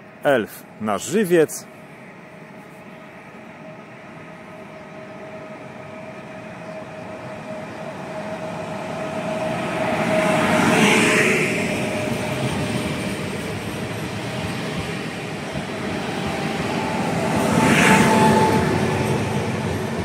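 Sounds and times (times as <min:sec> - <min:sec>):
train wheels on rails: 0:01.9 - 0:20.0.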